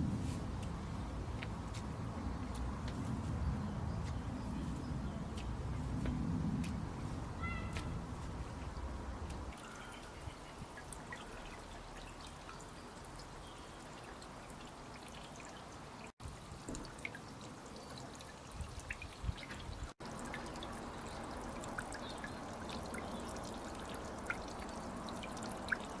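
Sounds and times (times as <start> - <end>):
water drips and splashes: 0.5 - 26.0
water trickling and pouring: 8.2 - 26.0.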